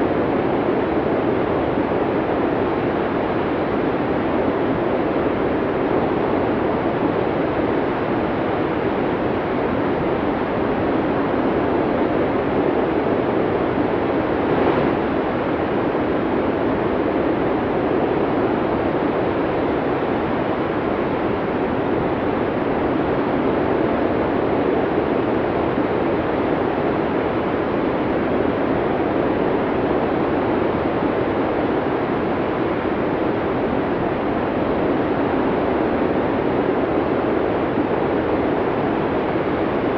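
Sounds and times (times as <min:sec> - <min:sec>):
snowstorm wind blowing: 0:00.0 - 0:39.9.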